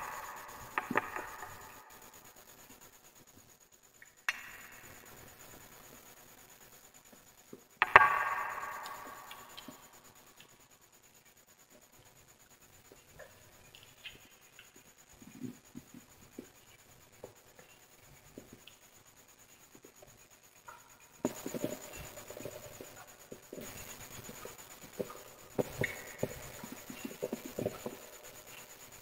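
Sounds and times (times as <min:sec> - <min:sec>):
steady hiss: 0:00.0 - 0:29.0
sharp pops: 0:07.8 - 0:09.9.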